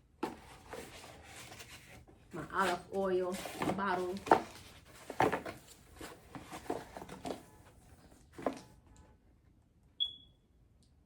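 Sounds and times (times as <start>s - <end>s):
packaging rustling: 0.2s - 7.6s.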